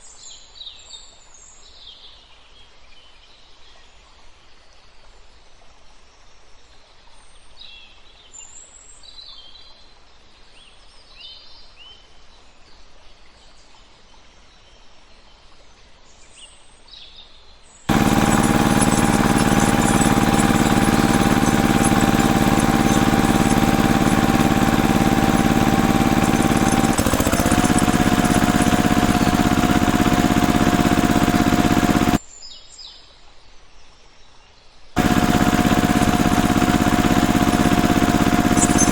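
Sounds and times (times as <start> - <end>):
birds chirping: 17.9 - 32.2, 35.0 - 38.9
engine running with whine: 17.9 - 32.2, 35.0 - 38.9.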